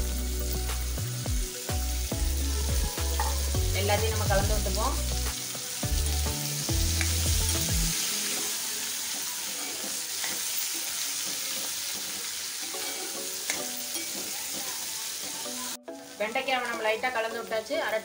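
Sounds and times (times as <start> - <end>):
okra sizzling in hot oil: 0.0 - 18.0
steel spatula scraping pan: 9.4 - 14.6.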